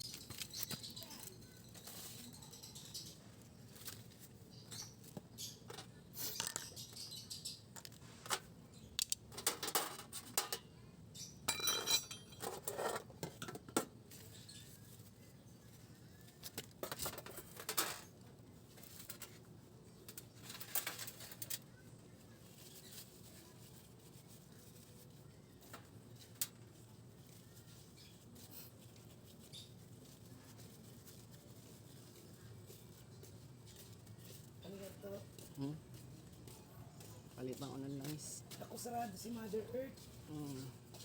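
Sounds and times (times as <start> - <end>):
metal tools scraping: 9.4 - 13.6.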